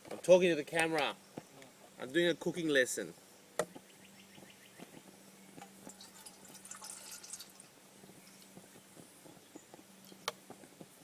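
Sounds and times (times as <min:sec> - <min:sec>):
light crackle: 0:03.8 - 0:11.0.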